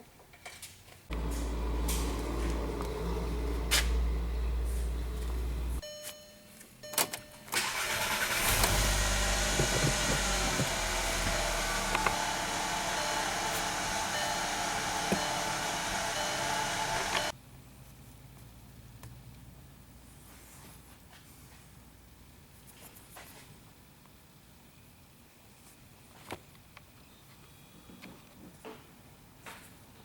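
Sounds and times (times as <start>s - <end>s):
car engine starting and idling: 1.1s - 5.8s, 6.9s - 17.3s
short electronic tone: 12.0s - 17.3s.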